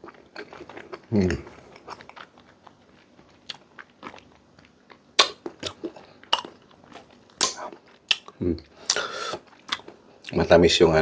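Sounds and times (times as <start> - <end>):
soft chewing: 0.0 - 10.5
wet mouth smacks: 5.2 - 6.6.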